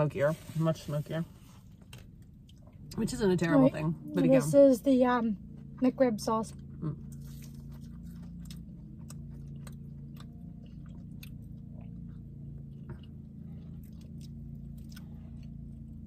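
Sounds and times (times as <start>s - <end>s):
low hum: 0.0s - 16.0s
people chewing food: 1.4s - 3.2s, 5.4s - 16.0s.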